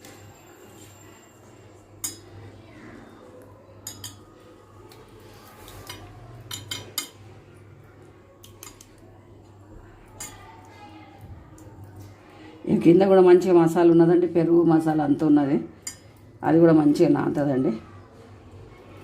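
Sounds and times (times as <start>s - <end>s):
kitchenware clinking against bowl: 2.0s - 2.5s, 3.8s - 4.4s, 5.6s - 7.3s, 8.4s - 9.0s, 10.1s - 10.6s, 15.8s - 16.2s.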